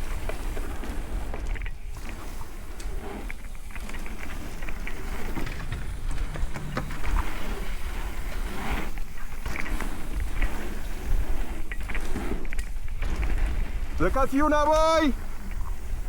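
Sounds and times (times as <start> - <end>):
bike rattling and clicking: 0.0 - 16.0
tyres crunching over dirt and rock: 0.0 - 16.0
wind rumbling on microphone: 0.0 - 16.0.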